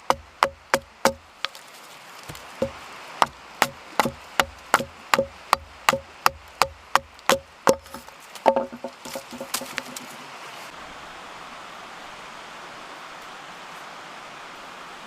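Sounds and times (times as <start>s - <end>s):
tool chopping wood: 0.0s - 1.6s, 2.2s - 10.2s.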